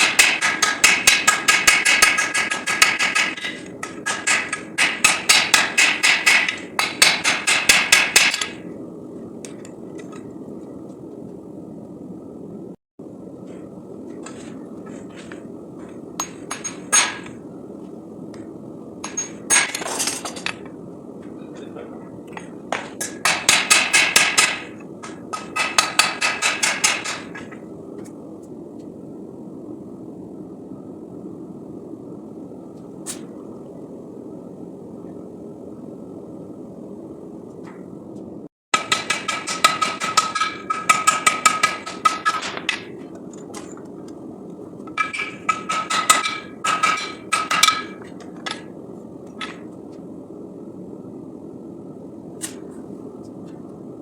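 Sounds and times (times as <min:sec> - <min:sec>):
hammer striking steel on anvil: 0:00.0 - 0:08.6, 0:23.0 - 0:24.7, 0:25.4 - 0:27.3, 0:38.8 - 0:42.9, 0:45.0 - 0:48.0
steady low noise: 0:00.0 - 0:38.5.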